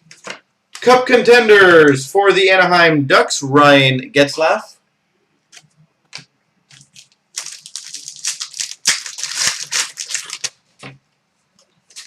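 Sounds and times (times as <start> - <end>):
card pack wrapper crinkling: 6.7 - 10.9.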